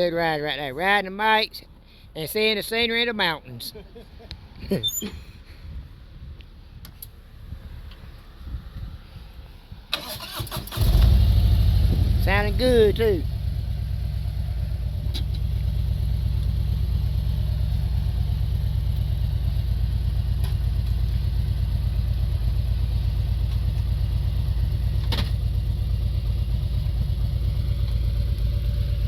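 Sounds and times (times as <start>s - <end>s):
motorcycle engines running: 10.8s - 29.0s.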